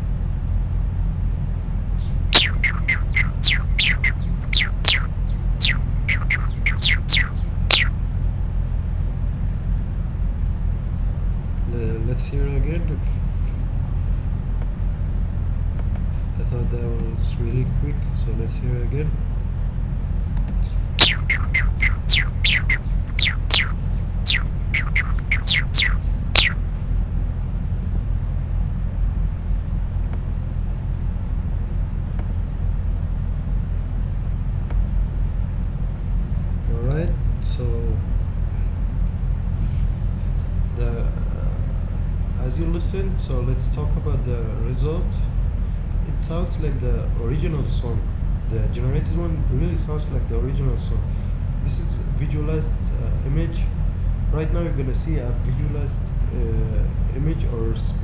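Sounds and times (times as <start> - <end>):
steady low hum: 0.0 - 58.0
synthetic high bird chirps: 2.0 - 7.9, 21.0 - 26.6.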